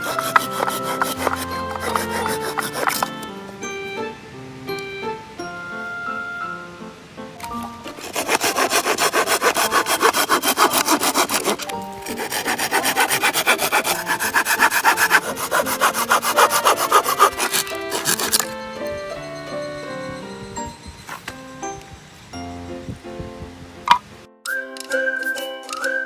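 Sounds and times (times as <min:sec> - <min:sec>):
pruning saw cutting wood: 0:00.0 - 0:03.3, 0:07.8 - 0:18.6.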